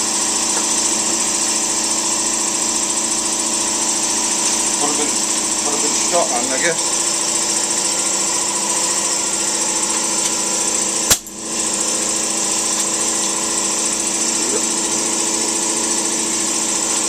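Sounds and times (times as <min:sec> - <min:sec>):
motor humming: 0:00.0 - 0:17.0
sharp click: 0:11.1 - 0:11.4.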